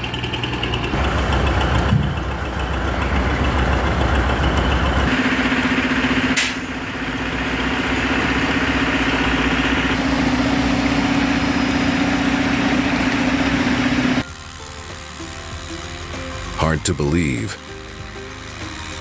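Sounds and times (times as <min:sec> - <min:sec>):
heavy machine engine droning: 0:00.0 - 0:19.0
sharp click: 0:06.4 - 0:06.7.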